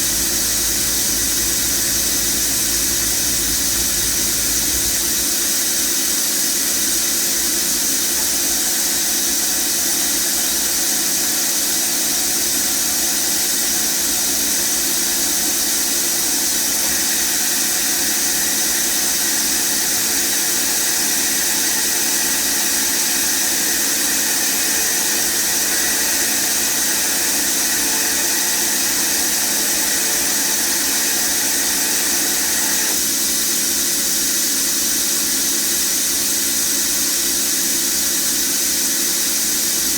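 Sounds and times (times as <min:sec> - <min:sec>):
machining centre spindle whine: 0:00.0 - 0:06.0, 0:08.6 - 0:33.5.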